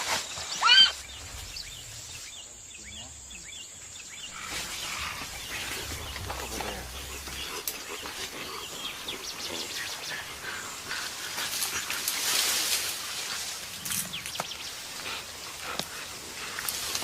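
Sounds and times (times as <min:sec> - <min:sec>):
animal calls: 0:00.4 - 0:03.5, 0:04.2 - 0:12.8
vegetation rustling and crackling: 0:03.8 - 0:17.0.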